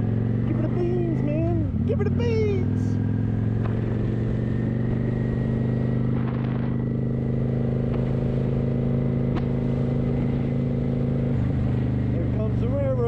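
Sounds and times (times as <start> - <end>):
motorcycle engine cruising: 0.0 - 13.0.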